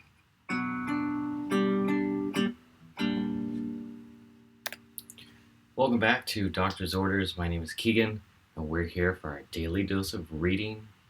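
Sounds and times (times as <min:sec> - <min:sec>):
guitar strumming chords: 0:00.5 - 0:05.2
sharp click: 0:04.6 - 0:05.2.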